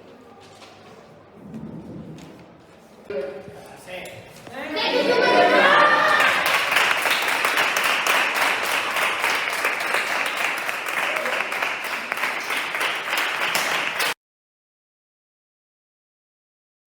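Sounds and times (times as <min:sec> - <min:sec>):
audience applauding: 0:04.8 - 0:14.2.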